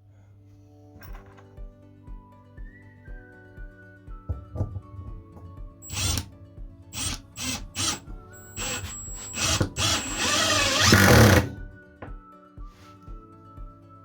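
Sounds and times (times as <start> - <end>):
power tool motor whirring: 5.8 - 6.3, 7.0 - 11.6.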